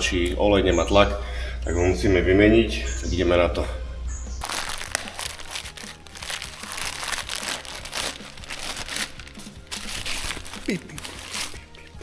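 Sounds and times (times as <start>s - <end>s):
scraping and crunching handling noises: 4.4s - 12.0s.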